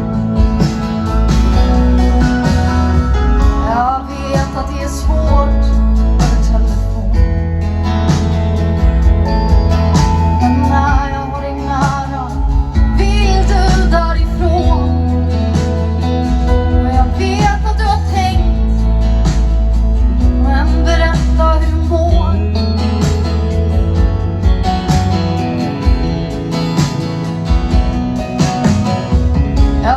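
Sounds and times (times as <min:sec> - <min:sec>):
guitar: 0:00.0 - 0:29.9
woman singing: 0:03.5 - 0:07.2, 0:10.2 - 0:18.9, 0:20.2 - 0:22.6, 0:29.7 - 0:29.9.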